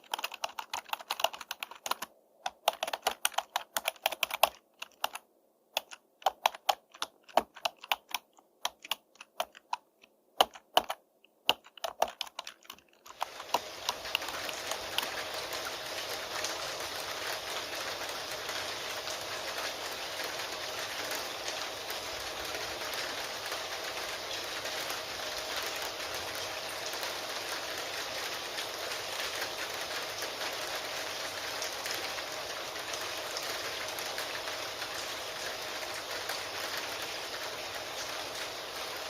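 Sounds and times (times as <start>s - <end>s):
keyboard typing: 0.0s - 15.7s
rain hissing: 13.1s - 39.0s.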